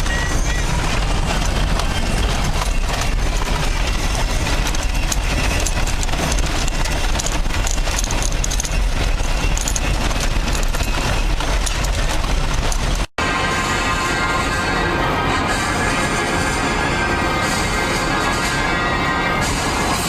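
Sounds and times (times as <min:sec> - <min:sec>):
gravel clattering against tyres: 0:00.0 - 0:13.1
car road rumble: 0:00.0 - 0:20.0
music: 0:13.2 - 0:20.0.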